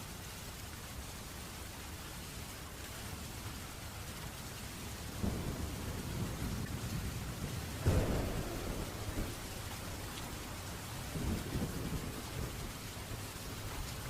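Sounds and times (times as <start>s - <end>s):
steady rain: 0.0s - 14.0s
low thunder rumble: 5.1s - 14.0s
sharp thunderclap: 5.2s - 13.7s.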